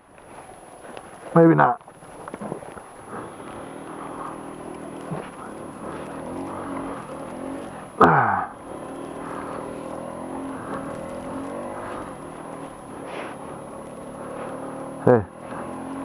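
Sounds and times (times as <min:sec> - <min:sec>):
scooter engine running: 0:00.0 - 0:16.0.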